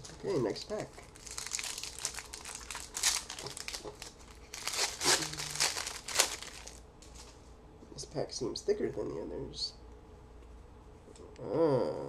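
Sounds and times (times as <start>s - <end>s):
wrapper crinkling: 0.8s - 7.4s.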